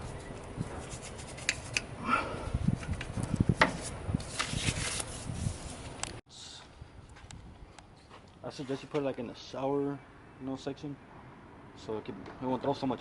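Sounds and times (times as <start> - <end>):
brush scrubbing engine parts: 0.1 - 1.9.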